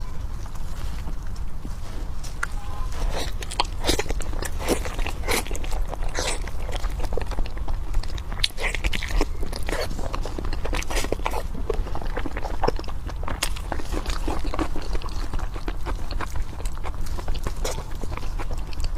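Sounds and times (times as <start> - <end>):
biting and chewing meat: 0.0 - 18.9
steady low hum: 0.0 - 18.9
wet mouth clicks: 3.1 - 18.9.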